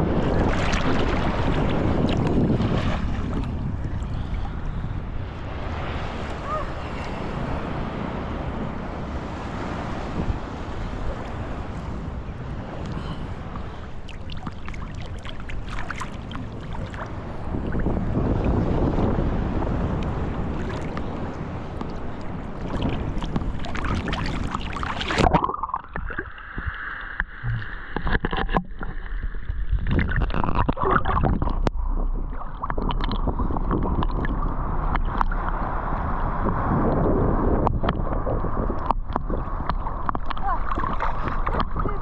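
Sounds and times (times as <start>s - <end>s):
ocean water rushing: 0.0s - 42.0s
wind: 0.0s - 42.0s
muffled underwater gurgling: 19.8s - 35.6s, 36.4s - 42.0s.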